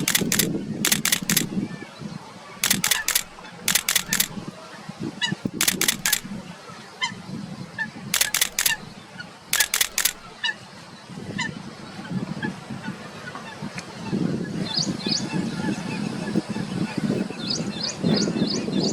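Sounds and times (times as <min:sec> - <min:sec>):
camera shutter clicks: 0:00.0 - 0:01.6, 0:02.6 - 0:04.4, 0:05.5 - 0:06.4, 0:08.2 - 0:08.9, 0:09.5 - 0:10.3.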